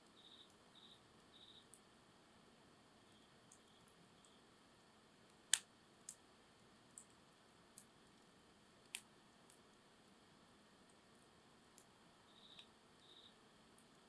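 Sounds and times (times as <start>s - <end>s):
campfire wood crackling: 5.2s - 10.2s.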